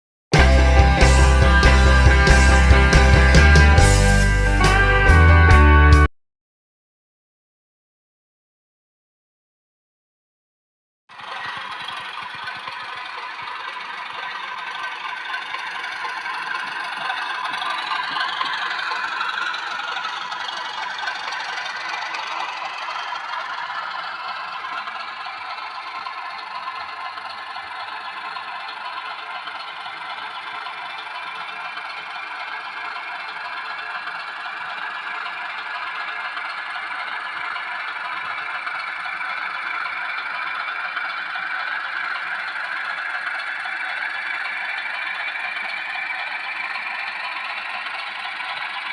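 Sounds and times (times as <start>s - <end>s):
rising whine: 0.4s - 6.1s
model train whirring: 11.1s - 48.9s
wheels clattering on rail: 11.1s - 48.9s.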